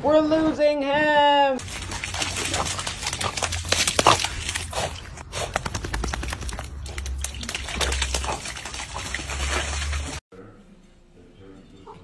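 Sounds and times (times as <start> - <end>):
dog splashing in puddle: 1.6 - 10.2.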